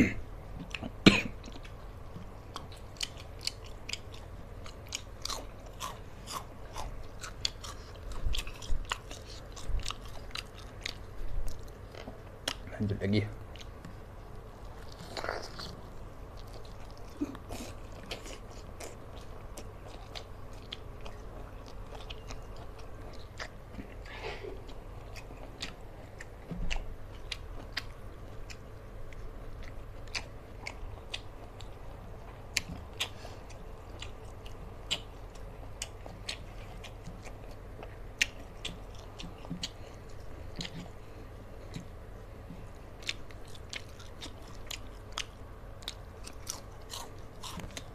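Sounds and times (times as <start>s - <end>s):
low steady hum: 0.0s - 47.9s
chewing and mouth smacking: 0.6s - 12.7s, 13.5s - 47.9s.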